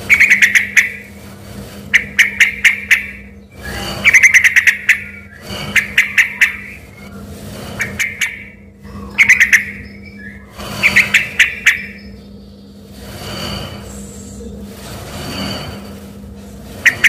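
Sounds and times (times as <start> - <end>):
bird singing sharp phrases: 1.9 - 7.2, 7.8 - 12.8.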